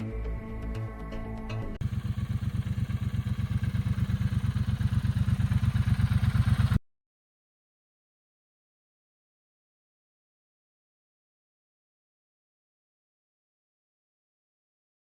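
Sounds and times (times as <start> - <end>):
music: 0.0 - 1.8
motorcycle engine running: 1.8 - 6.8.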